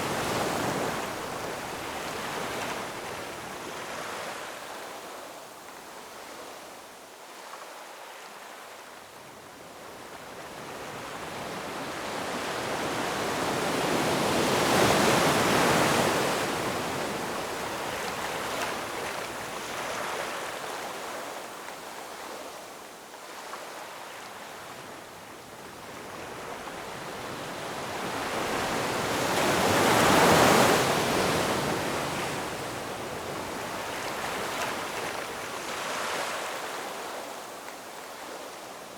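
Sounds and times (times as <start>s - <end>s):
waves crashing on shore: 26.2s - 38.9s.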